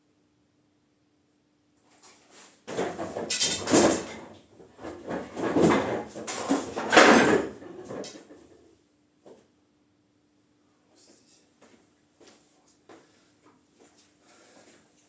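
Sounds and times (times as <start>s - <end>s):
objects scraping and clattering: 2.0s - 8.6s.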